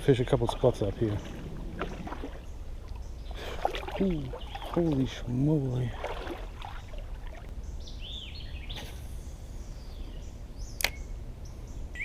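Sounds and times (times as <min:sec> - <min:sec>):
birds chirping: 0:00.0 - 0:12.0
low rumble of outdoor noise: 0:00.0 - 0:12.0
sharp click: 0:10.8 - 0:11.1.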